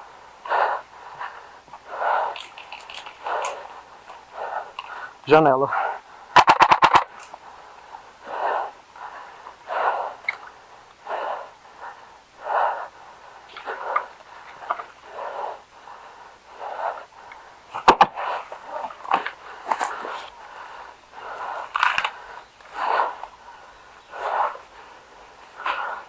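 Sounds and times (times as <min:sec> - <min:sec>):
heavy breathing: 0:00.0 - 0:06.4, 0:07.0 - 0:26.0
rapid airsoft gunfire: 0:06.4 - 0:07.3.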